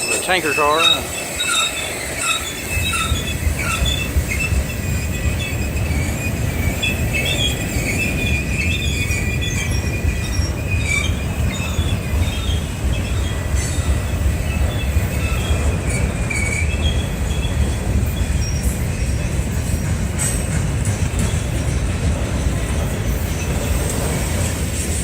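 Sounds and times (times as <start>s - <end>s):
high-pitched wheel squeal: 0.0s - 13.9s, 14.5s - 19.2s
train wheels rumbling on rails: 0.0s - 25.0s.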